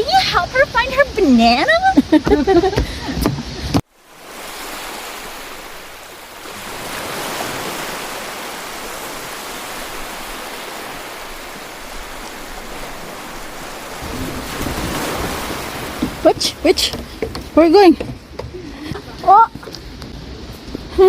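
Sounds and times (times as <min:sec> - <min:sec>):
waterfall rushing: 0:04.1 - 0:17.9.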